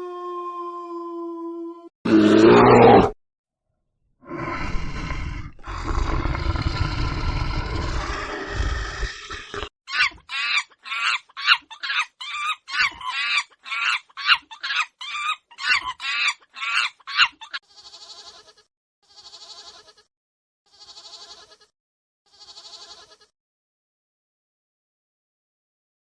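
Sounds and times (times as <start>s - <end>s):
drawn-out wavering bleats: 17.6s - 20.1s, 20.7s - 21.7s, 22.3s - 23.3s.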